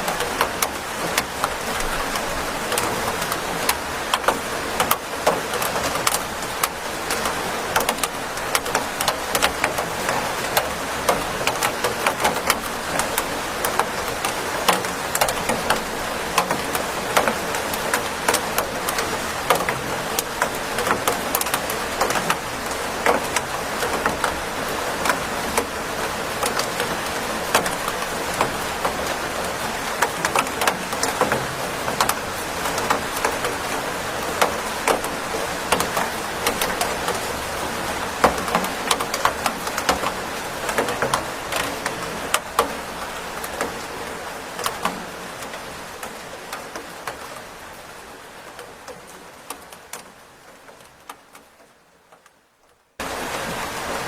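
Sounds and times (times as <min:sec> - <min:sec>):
raindrops ticking: 0:00.0 - 0:54.0
steady rain hissing: 0:00.0 - 0:54.0.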